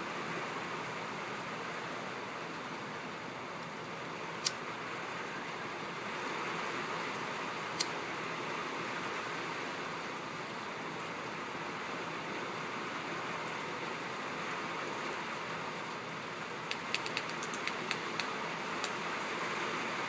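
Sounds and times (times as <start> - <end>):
rain on a tin roof: 0.0 - 20.0
sharp ticks: 16.6 - 19.0.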